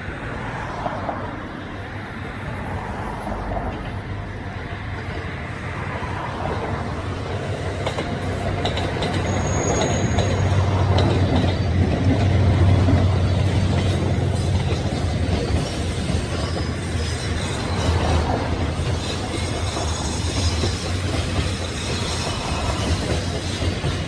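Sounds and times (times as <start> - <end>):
train rumble: 0.0 - 24.0
wheels clicking over rail joints: 6.0 - 24.0
wheel squeal: 8.9 - 12.0, 15.4 - 24.0.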